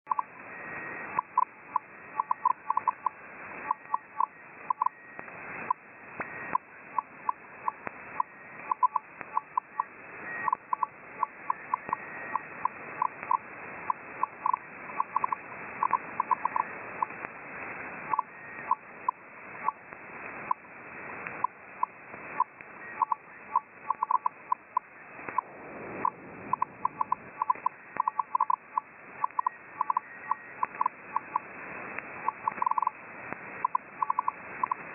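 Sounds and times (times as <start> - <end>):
short radio beeps: 0.1 - 17.2, 21.4 - 31.5
radio band hiss: 0.1 - 34.9
fainter higher beeps: 21.4 - 31.5.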